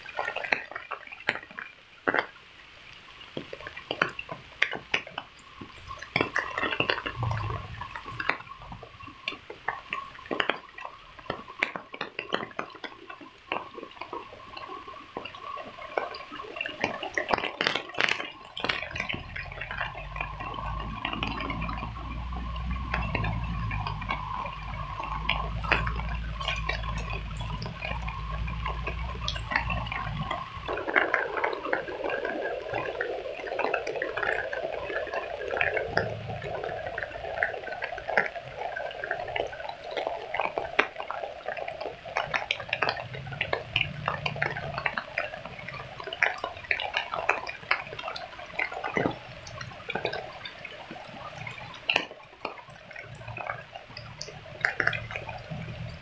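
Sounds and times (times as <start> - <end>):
rain drops tapping on leaves: 0.0 - 56.0
low rumble: 6.9 - 9.0.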